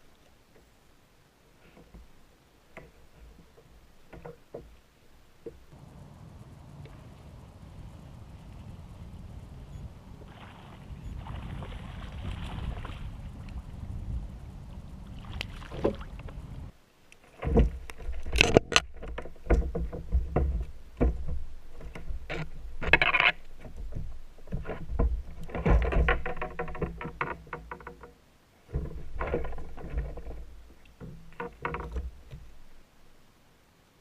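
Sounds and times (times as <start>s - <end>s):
water sounds: 0.0s - 20.0s.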